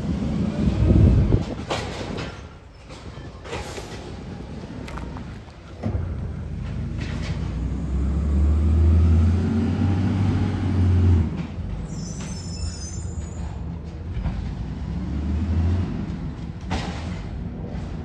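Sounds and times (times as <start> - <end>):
vehicle engine rumbling low: 0.0 - 11.9.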